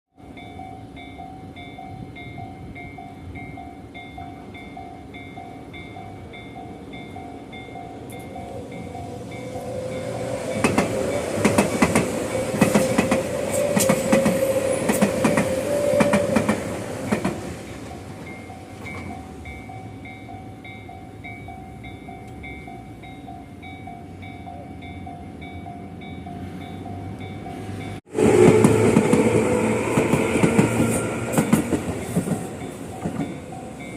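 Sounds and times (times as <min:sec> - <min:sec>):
close train running: 0:00.2 - 0:33.9
level crossing warning bell: 0:00.2 - 0:33.9
train wheels clattering: 0:08.1 - 0:19.3, 0:28.2 - 0:33.9.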